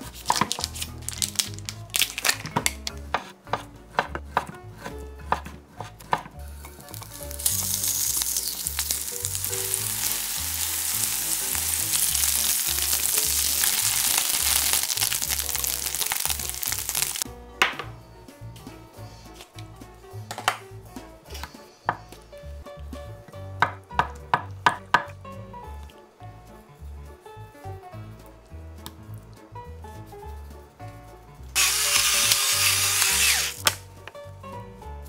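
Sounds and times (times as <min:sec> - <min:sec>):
meat sizzling in oil: 0:06.9 - 0:17.2, 0:31.6 - 0:33.7.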